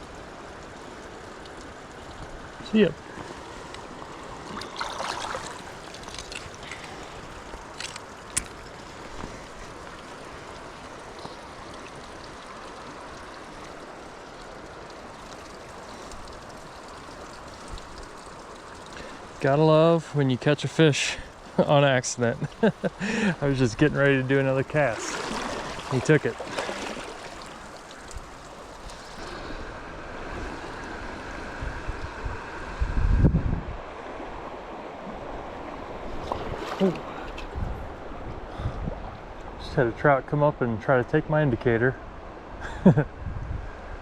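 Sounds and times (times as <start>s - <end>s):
creek water running: 0.0s - 33.2s, 33.8s - 43.1s
wind buffeting microphone: 31.4s - 34.0s, 37.3s - 39.6s, 43.1s - 44.0s.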